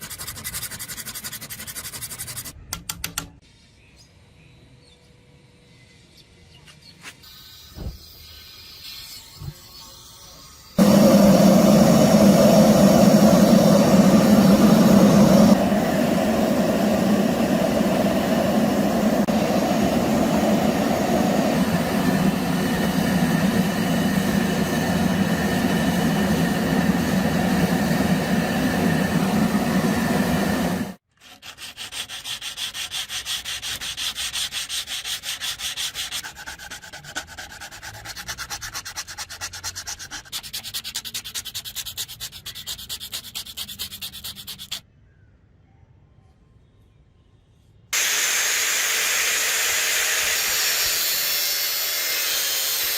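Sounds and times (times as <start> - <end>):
rhythmic sanding: 0.0 - 2.6, 31.2 - 44.8.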